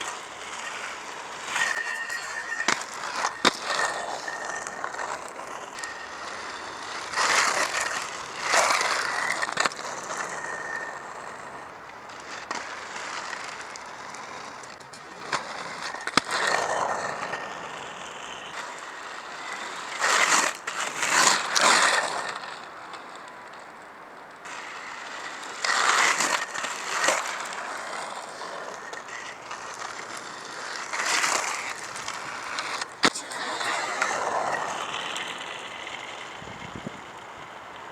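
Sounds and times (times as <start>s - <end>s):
skate wheels rolling on pavement: 0.0s - 37.9s.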